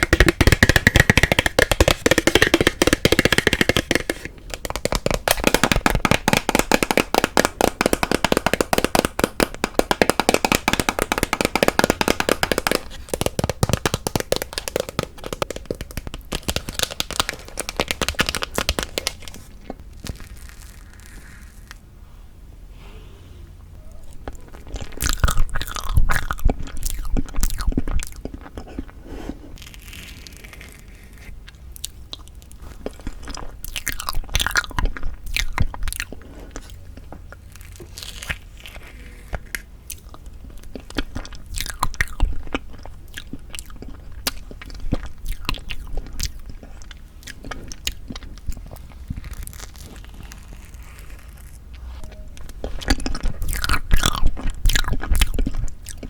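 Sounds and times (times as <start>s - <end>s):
person chewing with wet clicks: 24.1s - 29.0s, 31.4s - 38.4s, 39.8s - 49.8s, 52.4s - 56.0s.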